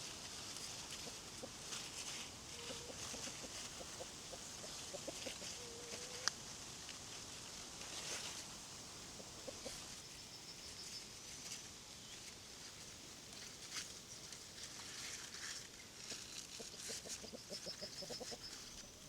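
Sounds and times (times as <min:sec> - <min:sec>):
chickens clucking quietly: 0:00.1 - 0:10.8, 0:15.7 - 0:19.0.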